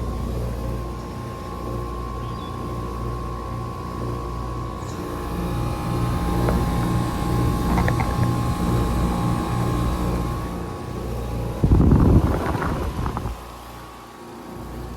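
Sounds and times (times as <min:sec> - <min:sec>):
air conditioner humming: 0:00.0 - 0:14.9
low rumble on microphone: 0:04.8 - 0:13.6.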